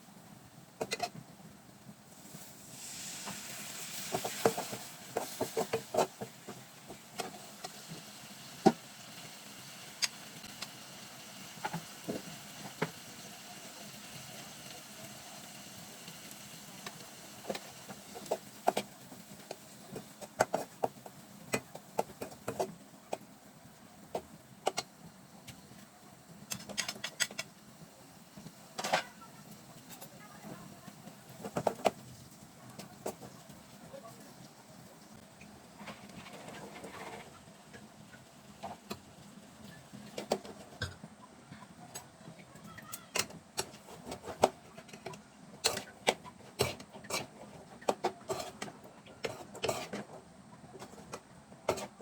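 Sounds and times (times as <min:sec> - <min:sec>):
chickpeas sizzling in a pan: 0:00.0 - 0:41.2, 0:41.8 - 0:52.0
spatula scraping a pan: 0:02.8 - 0:07.9, 0:43.6 - 0:52.0.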